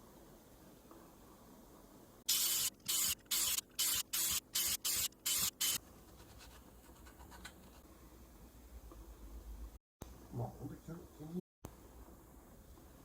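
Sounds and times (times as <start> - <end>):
spray paint hissing: 2.3 - 5.8.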